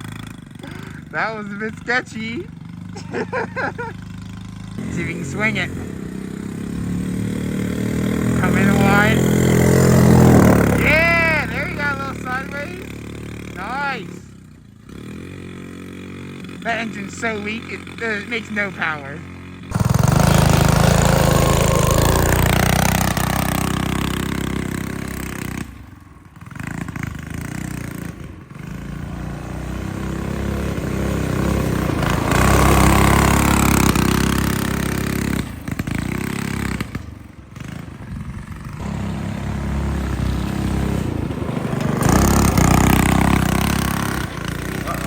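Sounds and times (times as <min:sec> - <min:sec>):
small engine revving: 0:00.0 - 0:45.0.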